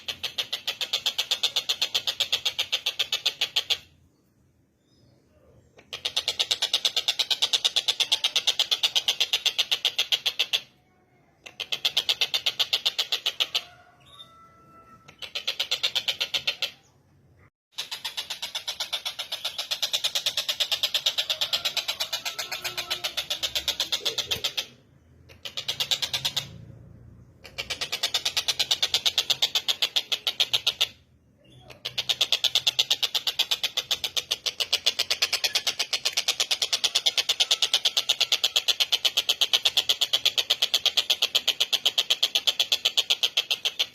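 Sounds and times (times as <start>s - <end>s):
bird calling in rapid sharp notes: 11.5s - 17.0s, 17.7s - 43.9s
kingfisher chattering call: 17.8s - 24.8s.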